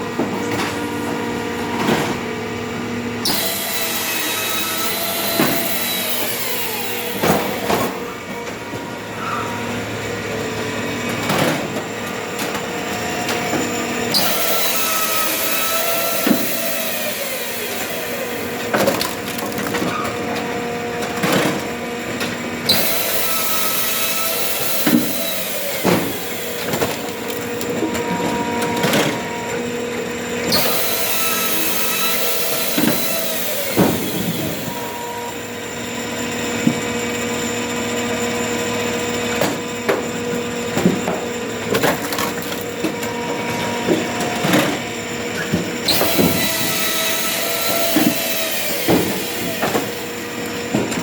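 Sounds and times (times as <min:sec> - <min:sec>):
log splitter engine drone: 0:00.0 - 0:51.0
wood splitting cracks: 0:18.6 - 0:20.0, 0:40.8 - 0:42.8.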